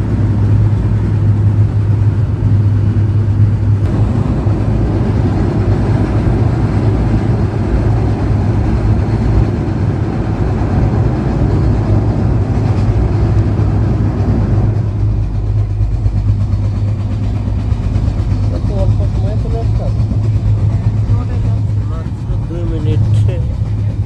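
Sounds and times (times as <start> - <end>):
train rumbling: 0.0 - 24.0
high rushing noise: 2.3 - 18.0.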